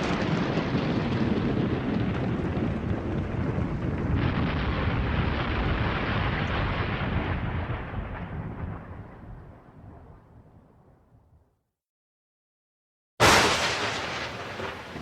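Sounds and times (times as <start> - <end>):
thunder rumbling: 0.0 - 11.3, 13.2 - 15.0.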